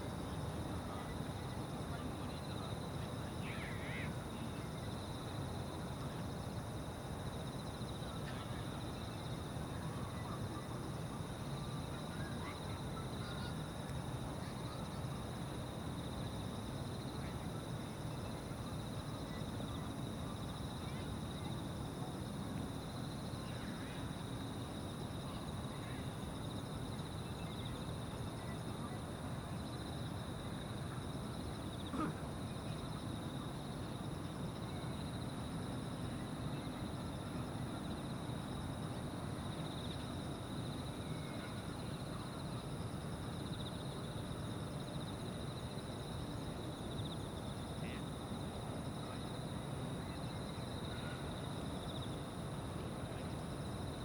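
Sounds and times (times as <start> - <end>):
insects trilling: 2.2 - 5.3, 6.4 - 22.2.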